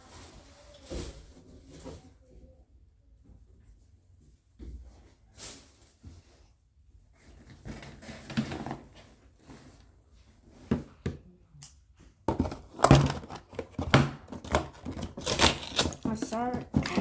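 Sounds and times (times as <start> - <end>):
crinkling plastic and cardboard: 12.3 - 17.0.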